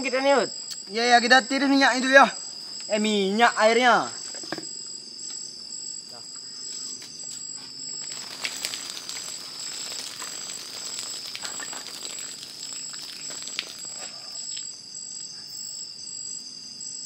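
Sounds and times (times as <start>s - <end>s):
forest insects buzzing: 0.0s - 17.0s
crackling hiss with clicks: 7.0s - 15.3s.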